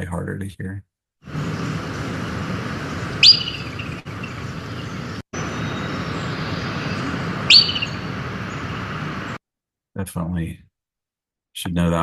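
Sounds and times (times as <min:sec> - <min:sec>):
steady background hiss: 0:01.3 - 0:09.4
groundhog alarm whistle: 0:02.2 - 0:09.2.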